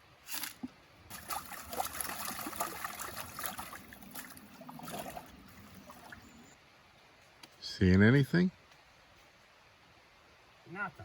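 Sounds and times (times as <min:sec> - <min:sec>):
water sloshing in a pan: 0:00.4 - 0:06.4.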